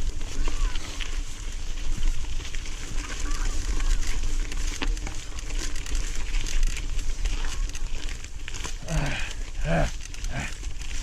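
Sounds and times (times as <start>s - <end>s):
bike clicks and rattles: 0.0s - 11.0s.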